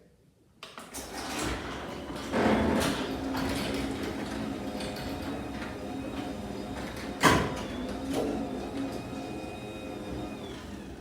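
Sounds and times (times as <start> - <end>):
garage door opener hum: 0.8 - 11.0.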